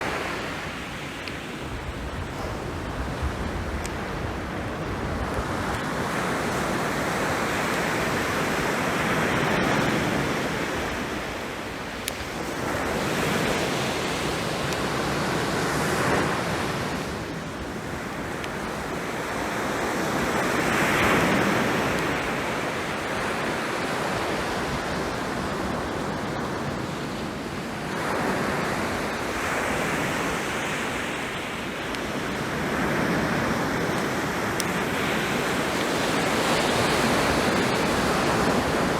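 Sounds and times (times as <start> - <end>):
sea waves breaking on beach: 0.0 - 38.9.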